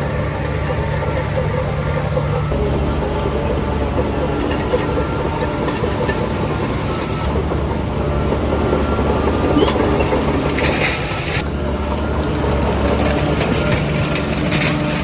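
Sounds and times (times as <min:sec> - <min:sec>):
heavy diesel machinery running: 0:00.0 - 0:15.0
metal clanking: 0:00.0 - 0:15.0.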